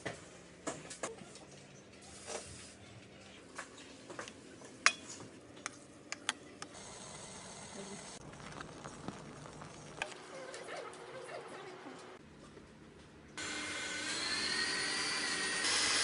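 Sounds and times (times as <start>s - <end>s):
utensils and dishes clinking: 4.8s - 5.3s.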